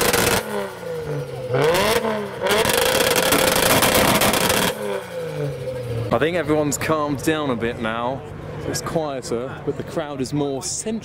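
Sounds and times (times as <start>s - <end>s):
car engine revving hard: 0.0s - 6.1s.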